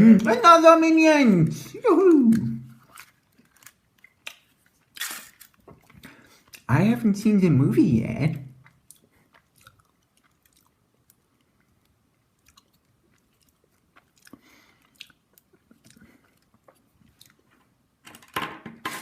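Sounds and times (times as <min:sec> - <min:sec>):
person speaking: 0:00.0 - 0:02.8, 0:06.6 - 0:08.6
chewing chocolate: 0:02.1 - 0:06.7, 0:08.3 - 0:17.8
small clicks and crunches: 0:02.7 - 0:06.7.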